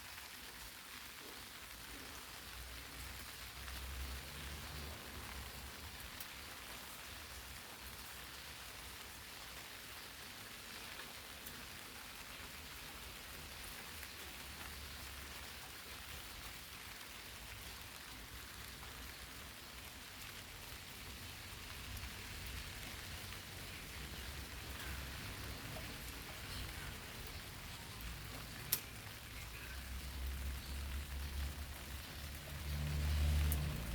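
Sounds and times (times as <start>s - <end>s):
rain pattering on leaves: 0.0s - 33.9s.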